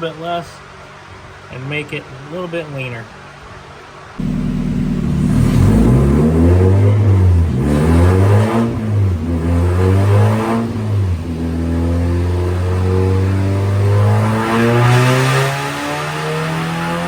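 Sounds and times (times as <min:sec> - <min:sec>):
car engine revving under load: 0:04.2 - 0:17.0.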